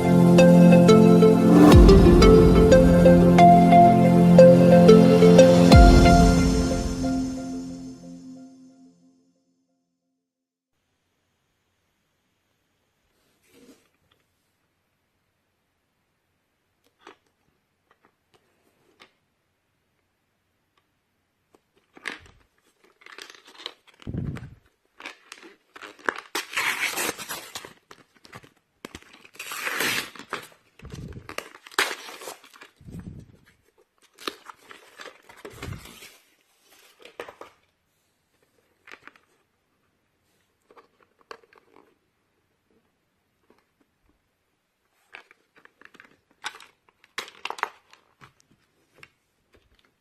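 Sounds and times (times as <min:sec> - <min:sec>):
plastic packaging crinkling and tearing: 0:21.7 - 0:32.8, 0:33.6 - 0:37.7, 0:38.4 - 0:39.6, 0:40.5 - 0:42.0, 0:45.0 - 0:50.0.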